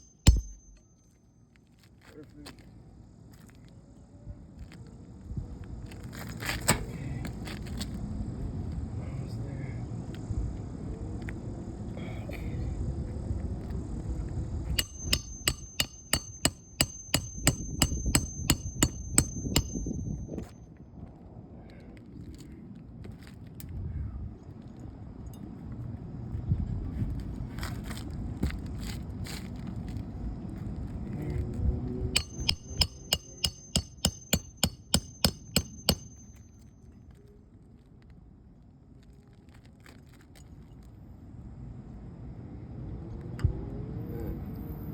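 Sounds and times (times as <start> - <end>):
hammer driving nail into shingle: 0.0 - 0.9, 14.8 - 20.4, 32.2 - 36.4.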